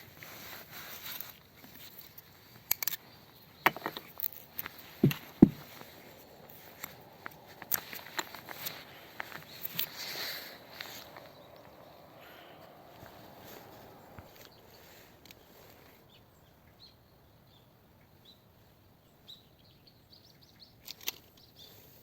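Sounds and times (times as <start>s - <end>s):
light handling knocks: 4.6s - 6.0s
footsteps: 5.0s - 5.8s.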